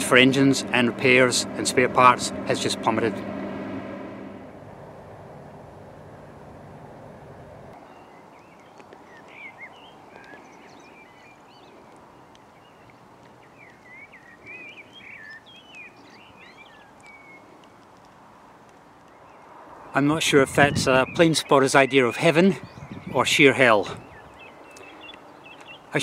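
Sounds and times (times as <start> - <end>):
low hum: 0.0 - 7.8
outdoor background hiss: 0.0 - 26.0
bird chirps and whistles: 13.6 - 17.4.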